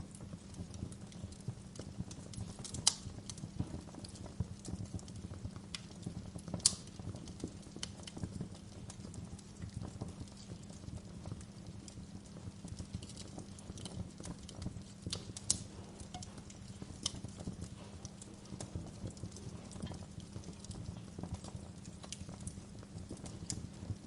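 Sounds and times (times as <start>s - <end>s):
fire low rumble: 0.0s - 24.0s
wood fire crackling and popping: 0.0s - 24.0s.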